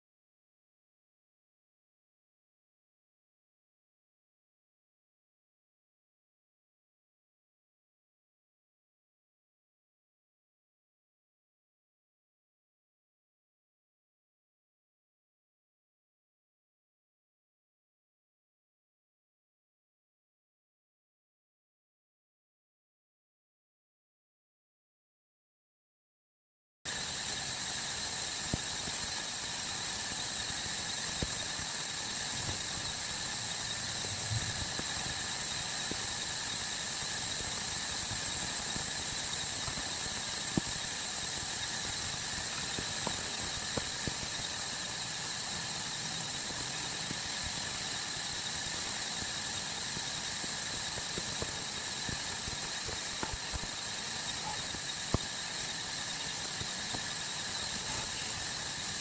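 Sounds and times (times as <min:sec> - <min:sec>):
faint ticks: 0:26.9 - 0:59.0
sawmill saw whining: 0:29.3 - 0:59.0.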